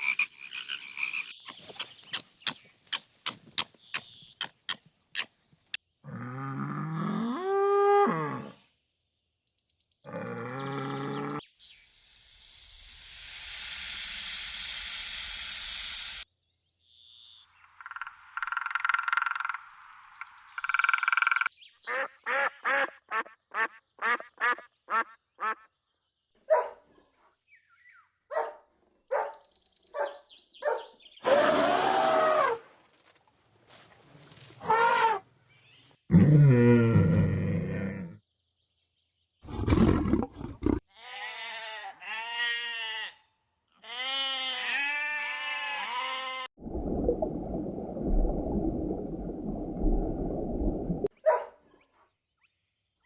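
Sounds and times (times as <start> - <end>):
long animal hiss: 11.6 - 16.3.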